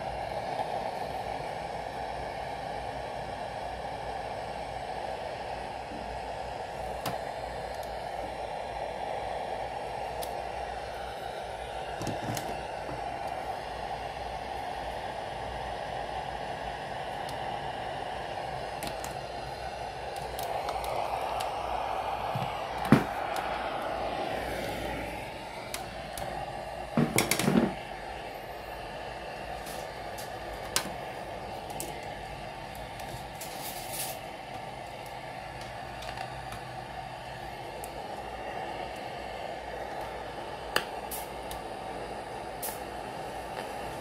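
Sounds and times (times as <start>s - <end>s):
radio speaker static hiss: 20.2s - 34.3s.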